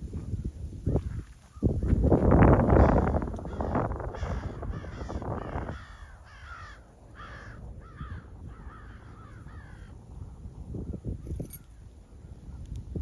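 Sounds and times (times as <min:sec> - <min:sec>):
crow cawing: 0:02.7 - 0:10.0.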